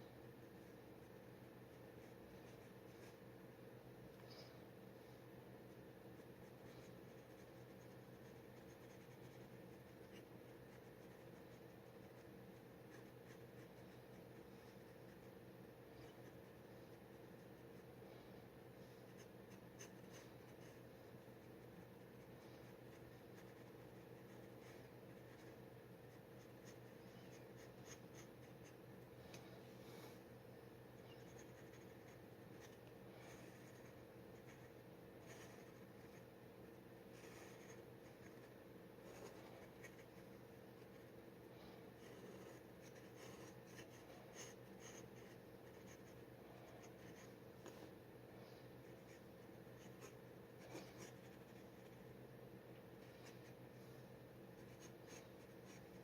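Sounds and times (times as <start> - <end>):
steady low hum: 0.0 - 56.0
dip pen scratching on paper: 0.4 - 3.2, 6.1 - 17.9, 18.8 - 28.8, 31.0 - 36.3, 37.1 - 41.1, 42.0 - 46.2, 48.8 - 52.0, 54.6 - 56.0.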